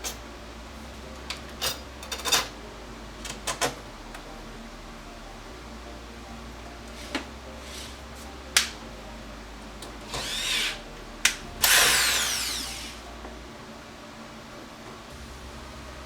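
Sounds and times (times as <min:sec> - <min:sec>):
small power tool whirring: 0:10.1 - 0:13.1.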